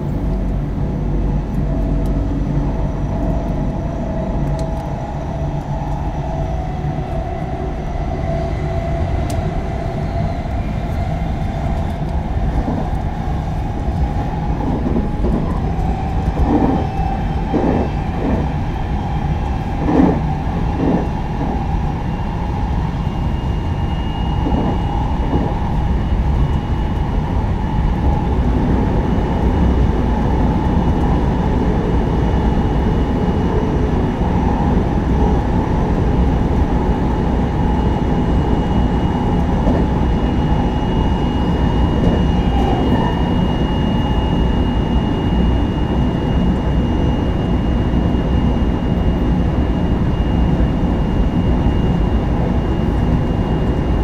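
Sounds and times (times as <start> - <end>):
wheel-on-rail rumble: 0.0 - 54.0
thin electric whine: 0.1 - 54.0
rail-joint clacks: 14.6 - 18.5, 19.8 - 21.6.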